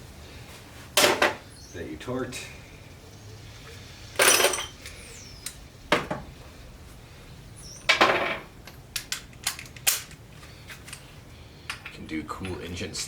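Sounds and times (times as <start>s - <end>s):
metal tools clanking on engine: 4.2s - 4.9s, 9.0s - 12.8s.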